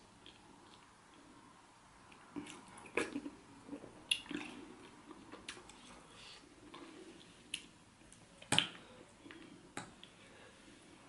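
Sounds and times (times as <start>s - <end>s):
wet chewing and mouth smacks: 4.1s - 5.9s.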